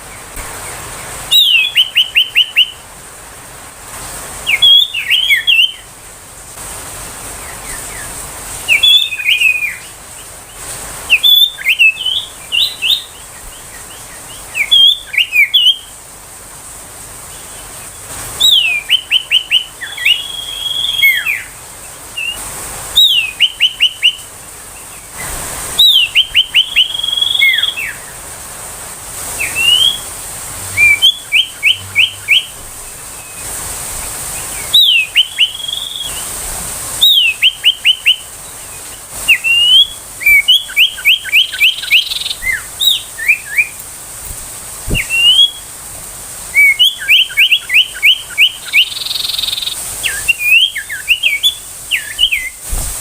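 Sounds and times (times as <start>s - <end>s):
bird singing whistled phrases: 1.3s - 2.8s, 4.5s - 5.9s, 8.7s - 10.0s, 11.1s - 15.9s, 18.4s - 21.6s, 22.2s - 22.4s, 23.0s - 24.3s, 25.8s - 28.1s, 29.4s - 30.1s, 30.7s - 32.6s, 34.5s - 36.3s, 37.0s - 38.3s, 39.3s - 43.8s, 44.9s - 45.7s, 46.5s - 52.6s.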